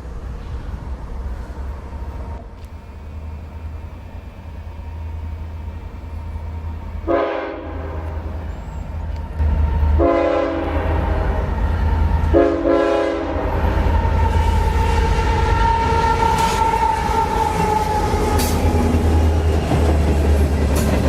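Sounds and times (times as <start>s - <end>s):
locomotive air horn blasts: 7.0s - 8.2s, 10.0s - 11.5s, 12.3s - 19.4s.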